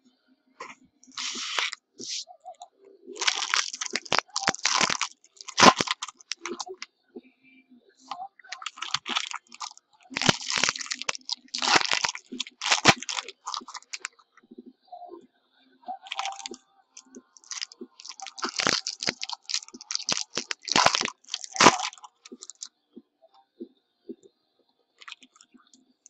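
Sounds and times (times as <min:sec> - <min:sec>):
plastic and foil packaging crinkling: 0:01.1 - 0:02.2, 0:03.2 - 0:06.8, 0:08.5 - 0:14.1, 0:16.1 - 0:16.6, 0:17.4 - 0:22.7, 0:25.0 - 0:25.3
sharp clicks and snaps: 0:03.2 - 0:06.8, 0:08.5 - 0:14.1, 0:16.1 - 0:22.7.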